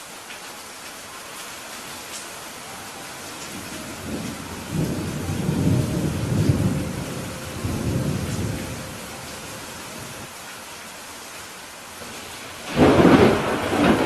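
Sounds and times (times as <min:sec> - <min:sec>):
rain hissing: 0:00.0 - 0:14.0
rolling thunder: 0:03.5 - 0:10.3, 0:12.2 - 0:14.0.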